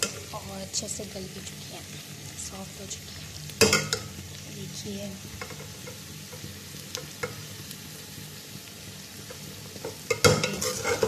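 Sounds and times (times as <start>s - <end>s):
okra sizzling in oil: 0.0s - 11.0s
metal spoon scraping a pot: 10.1s - 11.0s.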